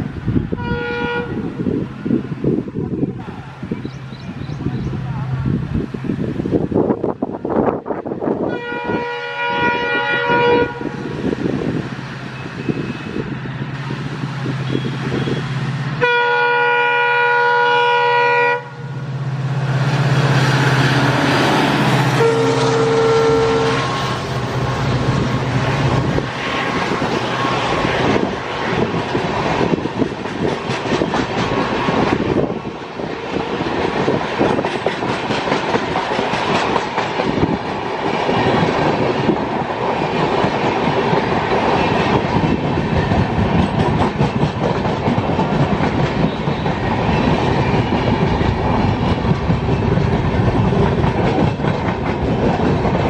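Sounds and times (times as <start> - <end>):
train passing with rumble: 0.0 - 53.0
train horn: 0.5 - 1.6, 8.4 - 11.1, 14.6 - 19.1, 22.0 - 24.3
wheels clicking over rail joints: 28.0 - 53.0.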